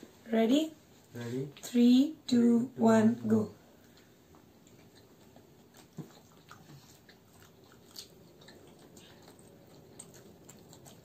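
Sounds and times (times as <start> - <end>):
people chewing fries: 3.7 - 11.0.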